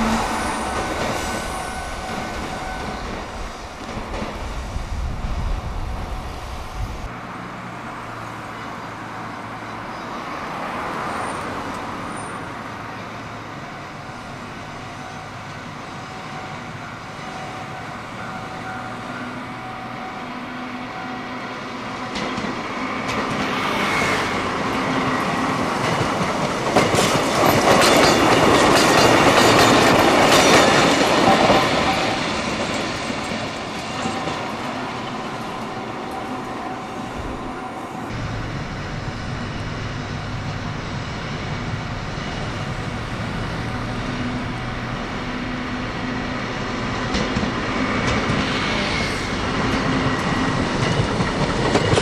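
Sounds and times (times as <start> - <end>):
electric railcars running past: 0.0 - 52.0
wheels clattering over rail joints: 25.0 - 36.3.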